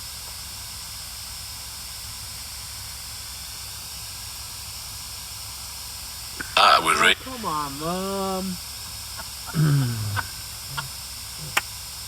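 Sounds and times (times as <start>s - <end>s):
steady hiss: 1.0s - 12.0s.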